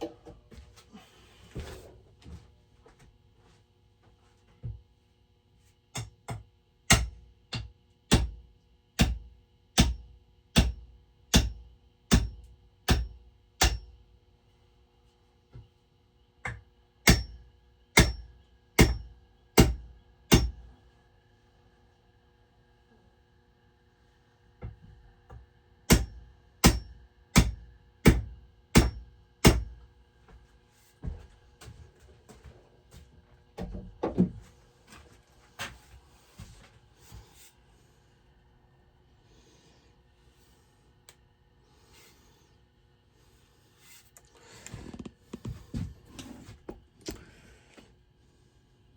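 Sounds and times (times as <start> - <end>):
hammer striking axe head: 6.0 - 8.4, 9.0 - 14.0, 16.5 - 17.4, 18.0 - 20.6, 25.9 - 29.8.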